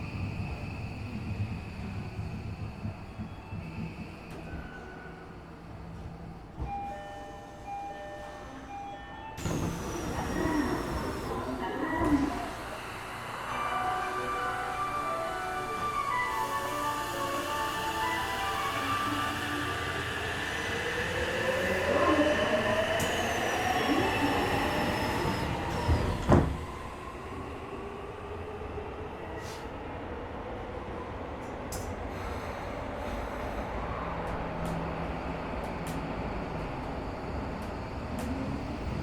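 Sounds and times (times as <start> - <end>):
subway train motor whine: 0.0 - 29.5, 30.5 - 39.0
train halting with a jolt: 9.4 - 26.9.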